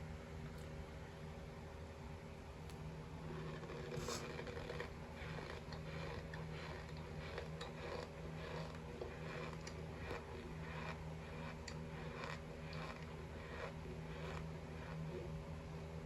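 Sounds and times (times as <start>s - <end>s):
steady low hum: 0.0s - 16.0s
chewing crunchy cornstarch: 3.2s - 15.4s.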